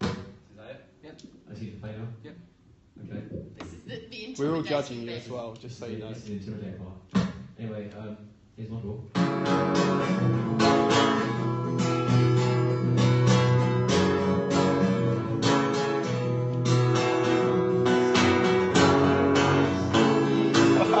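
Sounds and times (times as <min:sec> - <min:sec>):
acoustic guitar strumming chords: 0:09.2 - 0:21.0.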